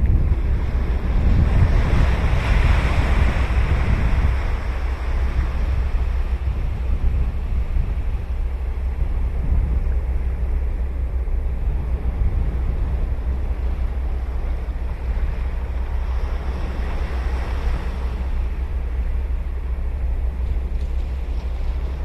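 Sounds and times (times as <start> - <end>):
ocean surf breaking on beach: 0.0 - 8.1, 15.0 - 18.9
low wind rumble on microphone: 0.0 - 22.0.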